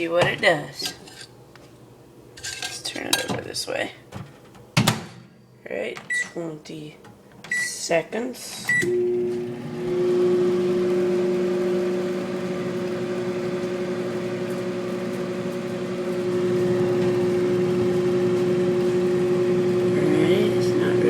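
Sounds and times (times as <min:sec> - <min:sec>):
microwave oven humming: 0:08.7 - 0:21.0.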